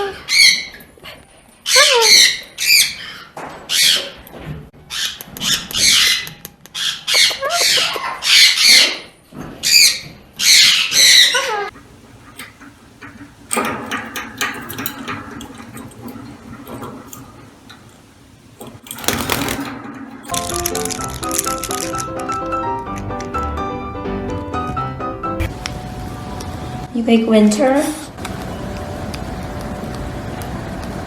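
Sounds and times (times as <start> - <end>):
parrot squawking and screeching: 0.0 - 0.8, 1.6 - 4.2, 4.9 - 11.7.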